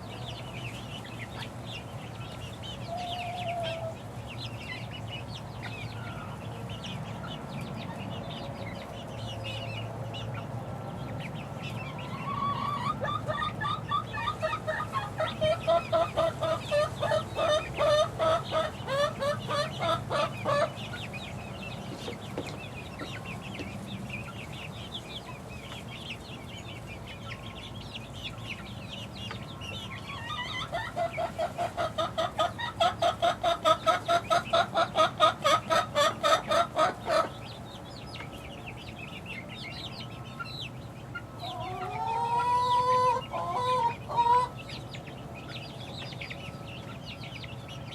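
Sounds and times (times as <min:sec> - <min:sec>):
chickens chirping: 0:00.0 - 0:47.9
chicken rising call: 0:12.0 - 0:20.7, 0:41.5 - 0:44.6.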